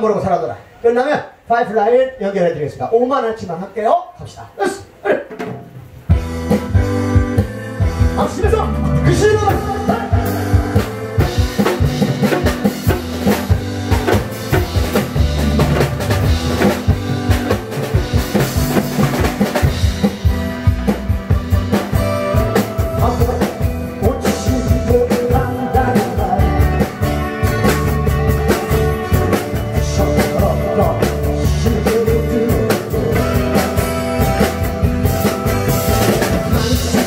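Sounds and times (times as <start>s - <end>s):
drum kit playing rock beat: 5.2s - 37.0s
instrumental music: 5.3s - 37.0s.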